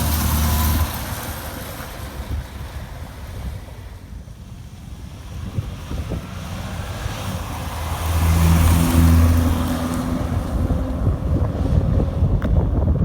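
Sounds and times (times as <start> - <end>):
wind on microphone: 2.2 - 13.0
car driving past: 6.2 - 12.4.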